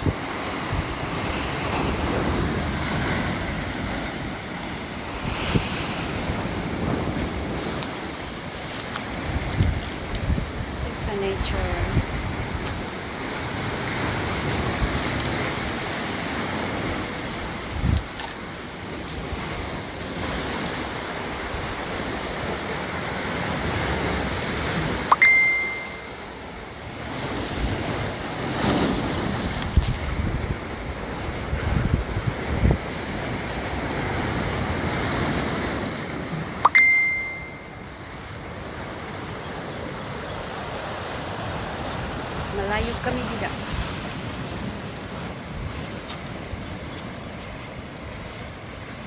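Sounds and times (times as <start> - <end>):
wind buffeting microphone: 0.0 - 18.2, 27.0 - 36.4
flowing water rushing: 0.0 - 49.0.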